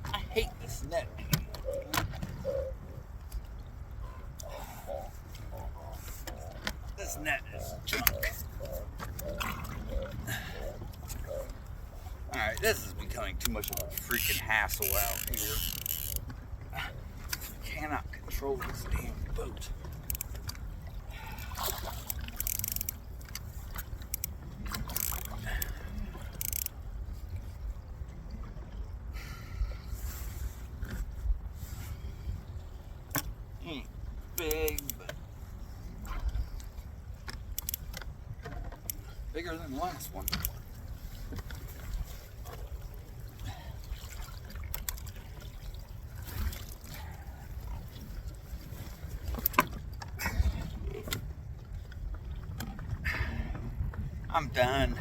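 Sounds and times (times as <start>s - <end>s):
water against boat hull: 0.0s - 29.1s, 29.9s - 55.0s
wind rumble on microphone: 35.0s - 55.0s.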